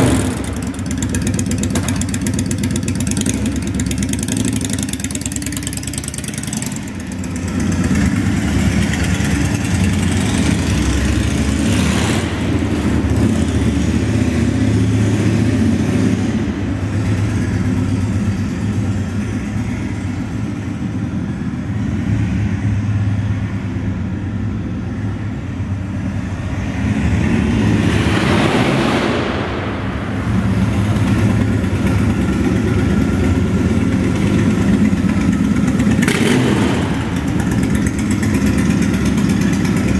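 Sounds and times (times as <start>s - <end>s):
motorcycle engine idling with blips: 0.0s - 11.5s, 31.3s - 39.9s.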